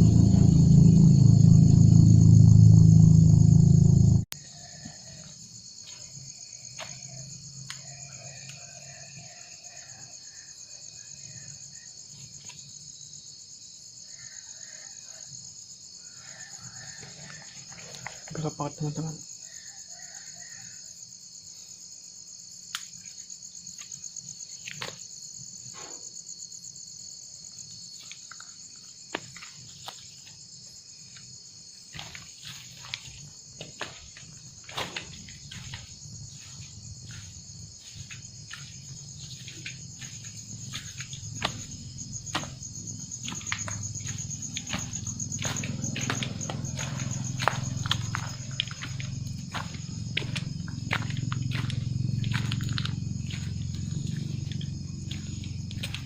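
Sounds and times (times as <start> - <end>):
low rumble: 0.0 - 4.4
crickets chirring: 0.0 - 56.0.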